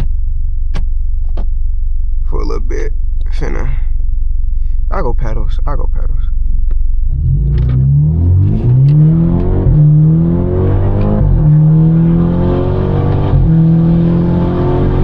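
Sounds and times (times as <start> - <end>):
car engine accelerating hard: 7.0 - 15.0.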